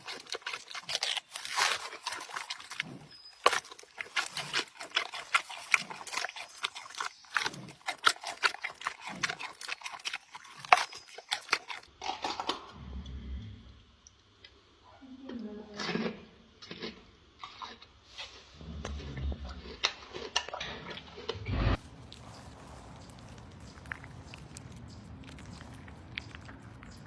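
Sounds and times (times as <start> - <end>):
animal crunching food: 0.0 - 13.2, 15.8 - 27.0
faint low hum: 0.0 - 27.0.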